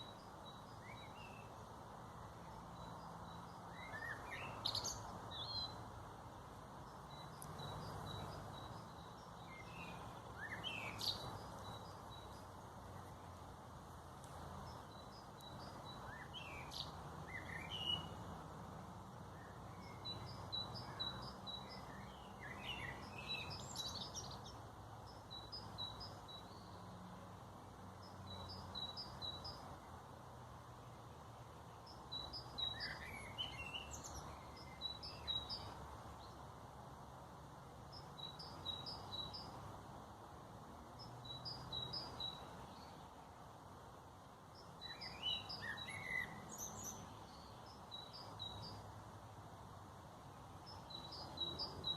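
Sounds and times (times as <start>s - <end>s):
warbling bird song: 0.0s - 18.4s, 19.2s - 27.0s, 27.8s - 30.0s, 30.9s - 36.5s, 37.7s - 39.8s, 40.9s - 43.3s, 44.1s - 51.9s
songbirds chirping: 0.0s - 51.9s.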